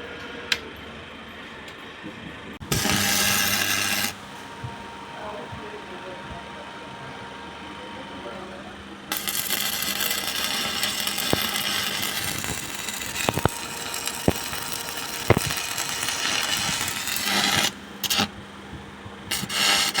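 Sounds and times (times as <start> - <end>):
arc welding crackling: 2.6 - 20.0.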